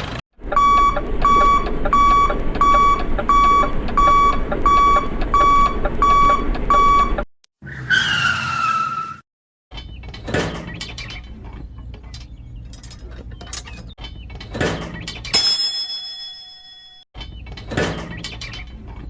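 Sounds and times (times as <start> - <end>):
low motor rumble: 0.4 - 7.2.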